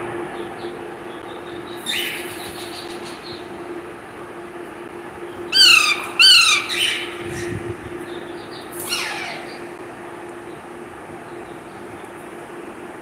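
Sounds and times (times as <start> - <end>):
parrot squawking: 1.8 - 3.0, 5.5 - 7.5, 8.7 - 9.8.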